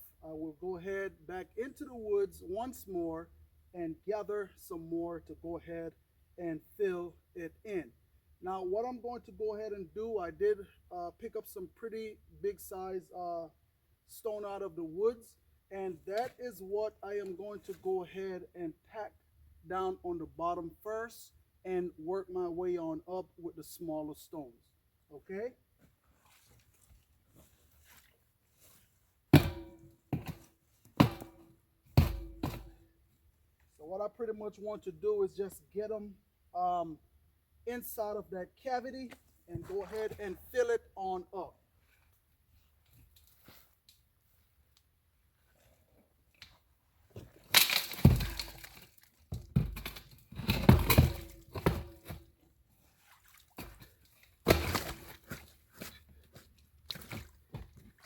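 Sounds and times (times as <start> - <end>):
large stones thudding: 29.4 - 31.4, 32.0 - 32.8, 47.2 - 52.2, 54.4 - 55.0.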